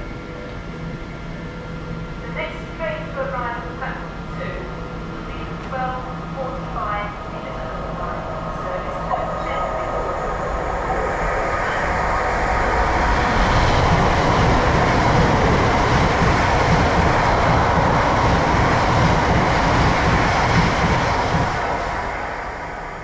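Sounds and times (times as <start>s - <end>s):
train wheels rumbling on rails: 5.2s - 23.0s.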